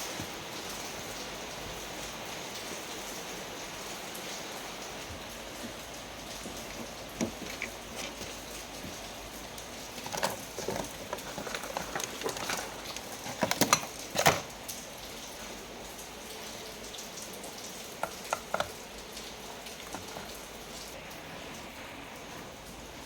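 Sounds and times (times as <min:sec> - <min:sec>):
clicks and taps: 0:18.0 - 0:18.8.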